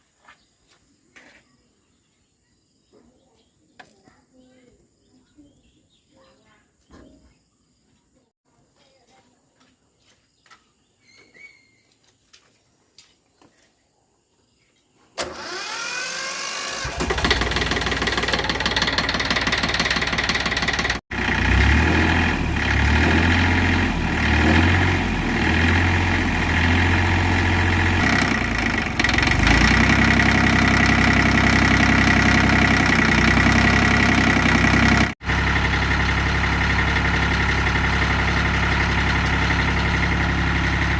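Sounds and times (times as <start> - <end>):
tractor engine starting and running: 15.2 - 40.9.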